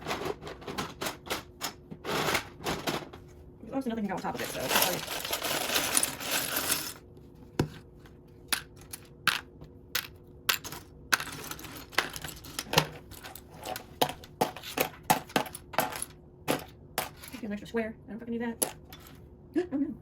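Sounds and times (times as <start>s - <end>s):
plastic pieces clicking and clattering: 4.3s - 7.0s, 8.5s - 17.4s.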